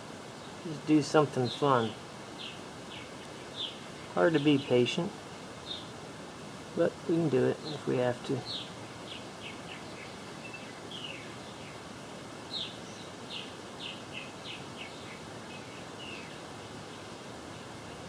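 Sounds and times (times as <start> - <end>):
steady background hiss: 0.0 - 18.0
small birds chirping: 0.2 - 6.0, 6.8 - 18.0.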